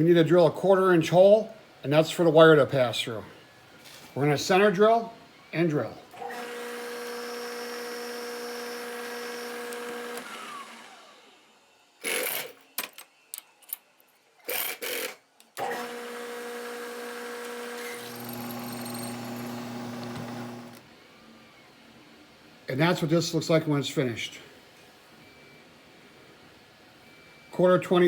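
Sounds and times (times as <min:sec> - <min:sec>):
milling machine spindle running: 0:15.6 - 0:20.8.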